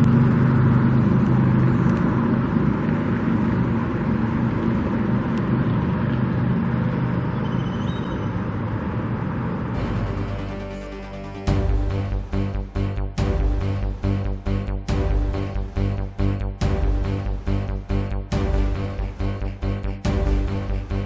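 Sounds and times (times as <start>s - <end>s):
vehicle engine running: 0.0s - 21.0s
music: 9.8s - 21.0s.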